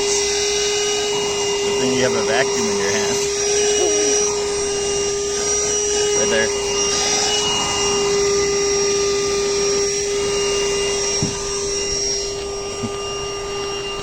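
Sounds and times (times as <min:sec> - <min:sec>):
handheld vacuum motor whine: 0:00.0 - 0:14.0
suction air rushing: 0:02.7 - 0:13.3.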